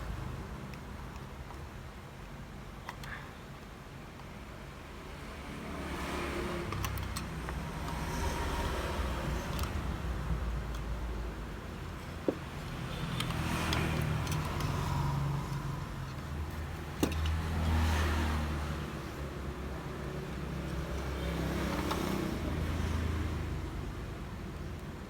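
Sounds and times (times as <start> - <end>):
motor vehicles passing: 5.0 - 24.7.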